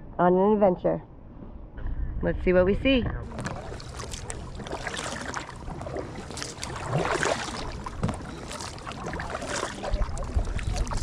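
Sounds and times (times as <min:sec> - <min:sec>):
paddles splashing in water: 0:03.2 - 0:11.0.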